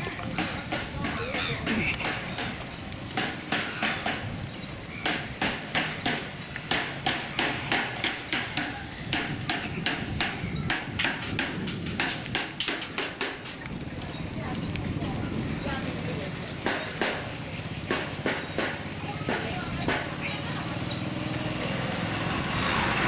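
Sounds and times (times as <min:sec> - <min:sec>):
sharp knocks on hard surface: 0:03.2 - 0:04.3, 0:05.0 - 0:13.6, 0:16.6 - 0:20.2.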